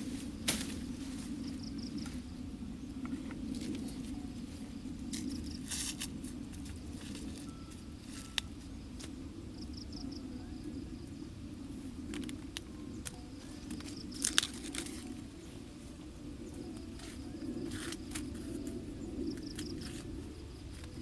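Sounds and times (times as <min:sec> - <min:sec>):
insect chirping in trills: 0:00.0 - 0:21.0.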